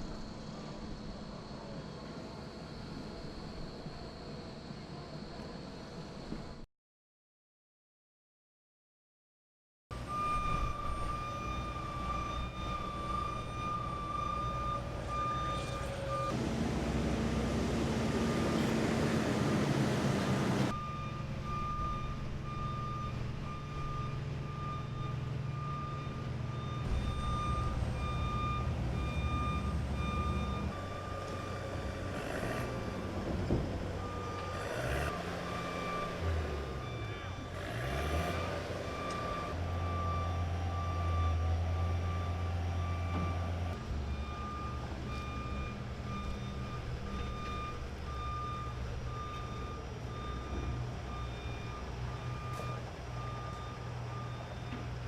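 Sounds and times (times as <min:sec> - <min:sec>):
diesel engine running: 0:09.9 - 0:55.0
backup alarm beeping: 0:10.0 - 0:16.4, 0:17.1 - 0:42.2, 0:44.0 - 0:55.0.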